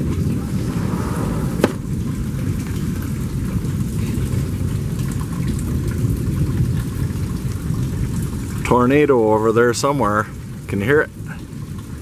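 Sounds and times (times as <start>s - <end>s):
steady low rumble: 0.0s - 8.6s.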